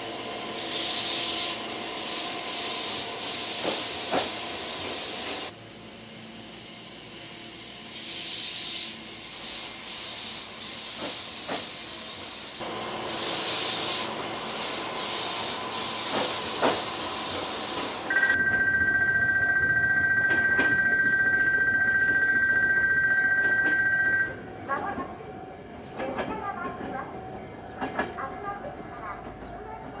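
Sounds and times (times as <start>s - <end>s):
two-tone electronic ring: 18.1s - 24.4s.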